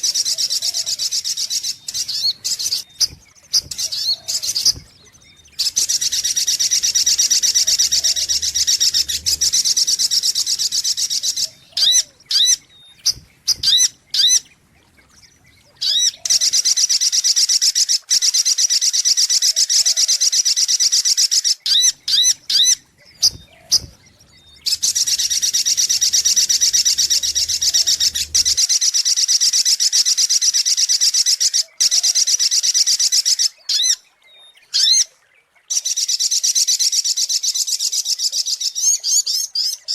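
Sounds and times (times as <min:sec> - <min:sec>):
sharp bird chirps: 0:00.1 - 0:16.6, 0:21.7 - 0:28.7.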